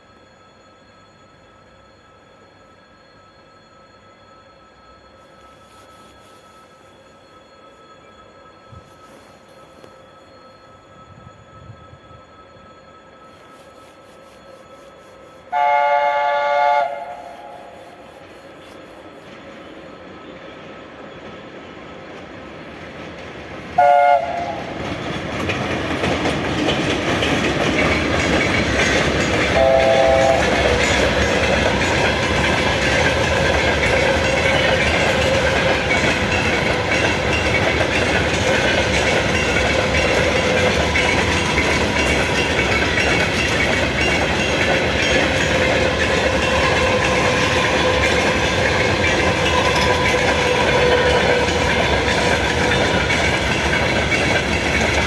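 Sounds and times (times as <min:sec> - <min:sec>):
train whine and rumble: 0:00.0 - 0:55.0
locomotive horn blasts: 0:15.5 - 0:18.0, 0:23.8 - 0:24.8, 0:29.5 - 0:31.2
wheels clacking on rail joints: 0:17.0 - 0:55.0.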